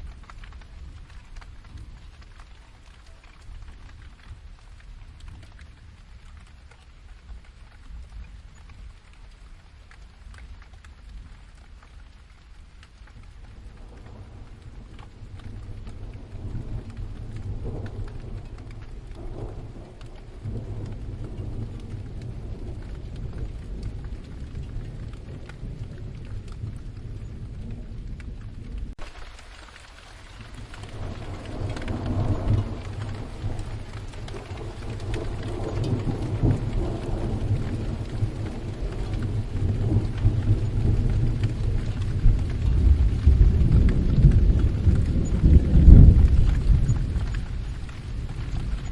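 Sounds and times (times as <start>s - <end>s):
steady rain: 0.0s - 48.9s
distant rolling thunder: 11.4s - 48.9s.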